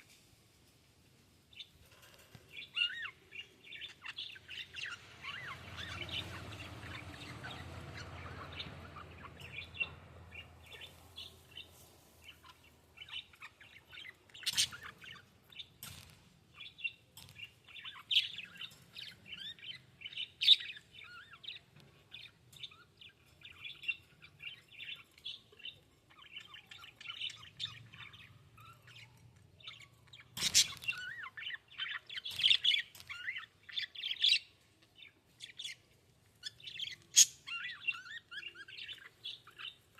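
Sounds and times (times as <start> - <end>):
budgerigars chirping: 2.6 - 15.7, 25.6 - 35.8, 36.4 - 39.9.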